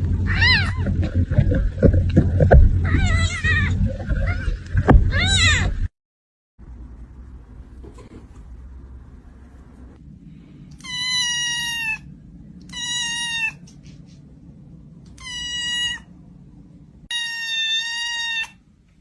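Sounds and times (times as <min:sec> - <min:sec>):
cat meowing: 0:00.3 - 0:00.8, 0:02.8 - 0:04.5, 0:05.1 - 0:05.7, 0:10.7 - 0:13.7, 0:15.1 - 0:16.1, 0:17.1 - 0:18.6.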